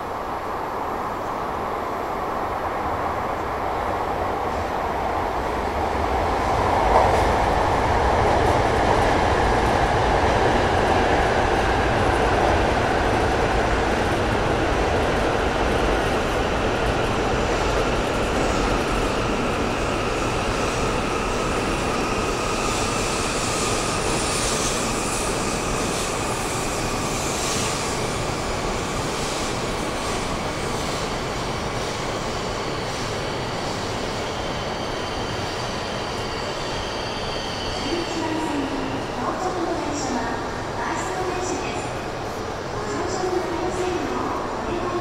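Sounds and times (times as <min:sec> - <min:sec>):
train rumbling past: 0:00.0 - 0:45.0.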